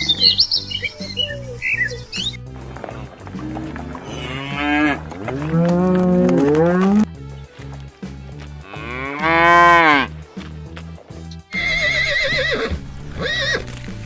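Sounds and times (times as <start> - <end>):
background music with bass beat: 0.0 - 14.0
cow mooing: 2.9 - 7.1, 8.6 - 10.1.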